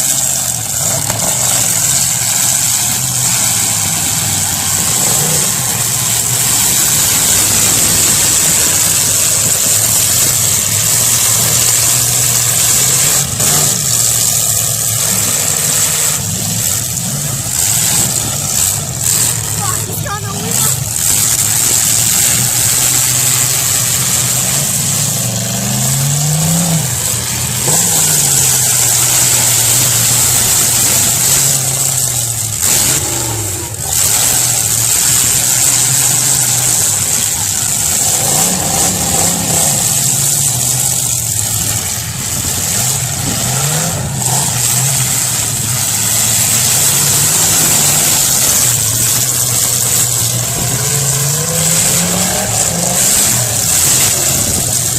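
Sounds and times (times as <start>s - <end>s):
car engines revving: 0.0s - 54.9s
loud steady din: 0.0s - 54.9s.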